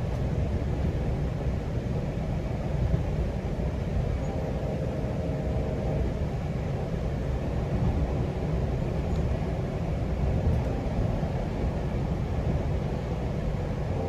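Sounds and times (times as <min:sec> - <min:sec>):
train wheels rumbling on track: 0:00.0 - 0:14.0
faint whine: 0:03.6 - 0:14.0.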